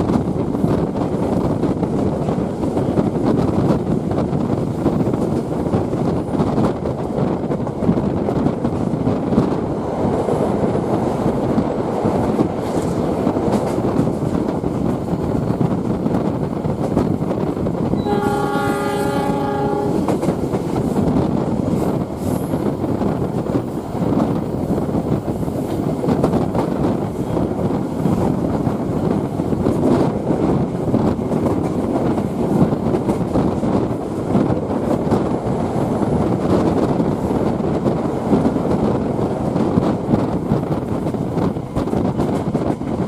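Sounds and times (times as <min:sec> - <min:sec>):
train rumble with wheel clatter: 0:00.0 - 0:43.0
locomotive horn: 0:18.0 - 0:20.1.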